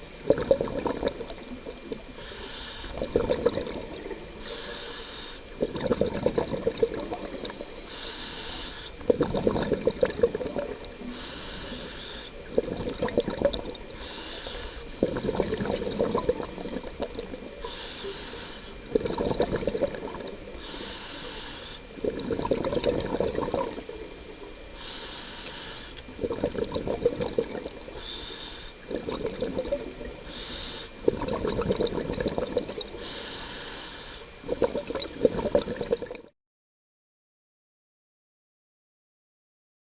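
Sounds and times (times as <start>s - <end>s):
bubbling exhale: 0.0s - 36.3s
regulator hissing inhale: 1.9s - 3.2s, 3.8s - 5.7s, 7.7s - 9.1s, 11.0s - 12.5s, 13.8s - 15.1s, 17.5s - 19.0s, 20.1s - 22.0s, 24.6s - 26.2s, 27.8s - 29.4s, 30.1s - 31.1s, 32.8s - 34.4s.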